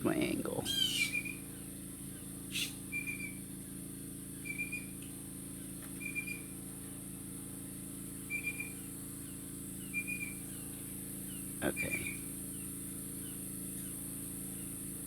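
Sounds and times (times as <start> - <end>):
harsh bird call: 0.5 - 1.4, 2.5 - 3.4, 11.6 - 12.2
bird whistling: 0.6 - 1.4, 2.5 - 3.4, 4.4 - 4.9, 6.0 - 6.5, 8.3 - 8.8, 9.8 - 10.4, 11.7 - 12.2.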